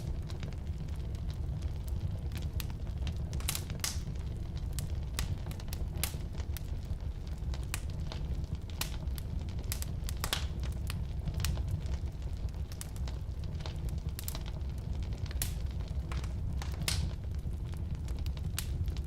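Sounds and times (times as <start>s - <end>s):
low roar of flames: 0.0s - 19.0s
wood crackling and popping: 0.0s - 19.0s.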